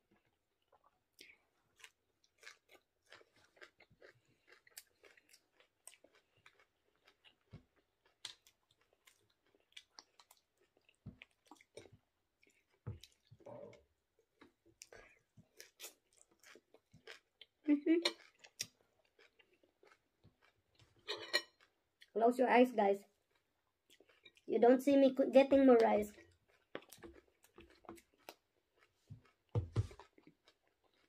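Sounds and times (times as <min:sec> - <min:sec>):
crunchy chewing: 0:00.2 - 0:13.5, 0:14.4 - 0:22.1, 0:26.1 - 0:31.0.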